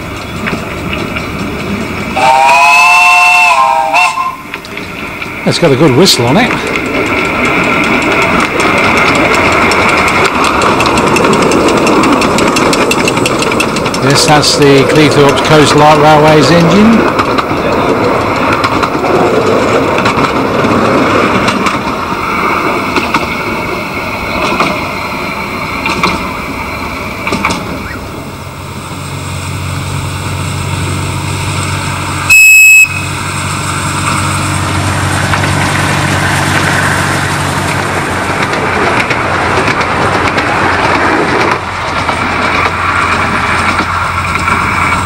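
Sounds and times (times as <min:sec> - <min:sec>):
diesel locomotive humming: 0:00.0 - 0:45.0
high-pitched whistle blast: 0:32.3 - 0:33.2.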